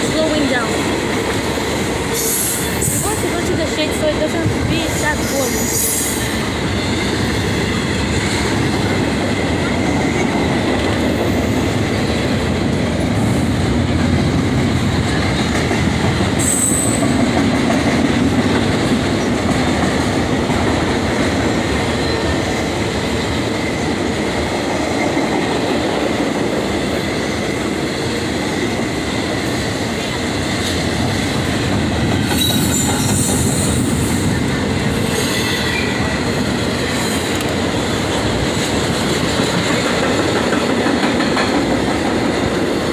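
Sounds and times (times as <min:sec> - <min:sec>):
train wheels rumbling: 0:00.0 - 0:42.9
high wheel squeal: 0:16.4 - 0:17.2.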